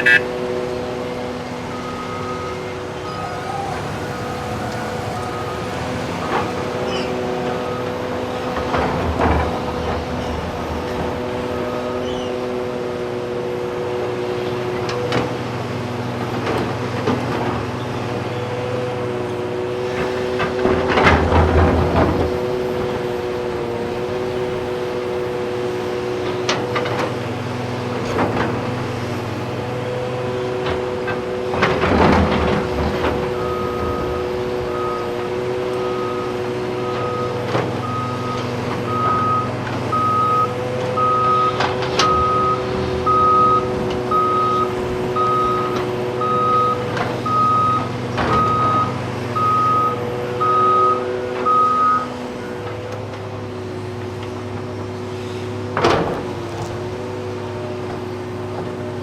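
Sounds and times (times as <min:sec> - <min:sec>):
truck reversing alarm beeping: 0:00.0 - 0:09.6, 0:29.7 - 0:52.8
heavy diesel machinery running: 0:00.0 - 0:59.0.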